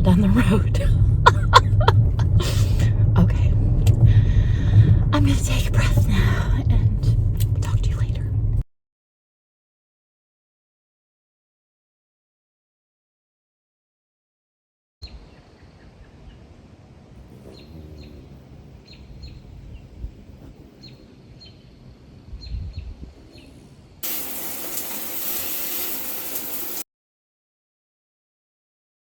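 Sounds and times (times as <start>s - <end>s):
low rumble: 0.0s - 8.6s
birds chirping: 17.2s - 26.8s
loud rushing hiss: 24.0s - 26.8s.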